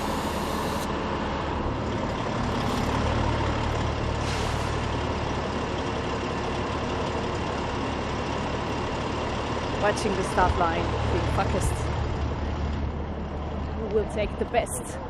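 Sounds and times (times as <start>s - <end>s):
truck engine running: 0.0s - 15.0s
short hisses: 4.2s - 4.8s.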